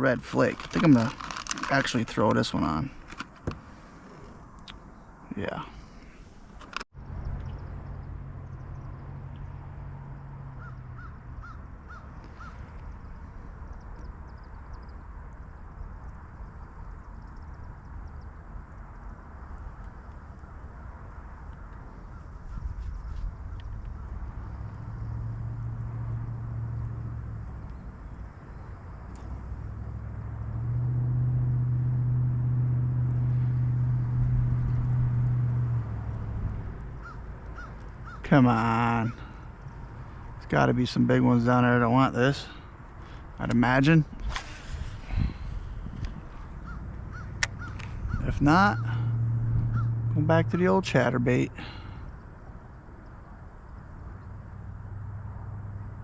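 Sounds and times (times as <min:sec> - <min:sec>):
steady low rumble: 0:00.0 - 0:56.0
bird calling: 0:10.5 - 0:14.9, 0:21.4 - 0:30.0, 0:36.8 - 0:40.4, 0:44.0 - 0:50.8
motor hum: 0:23.3 - 0:40.4, 0:44.1 - 0:50.6.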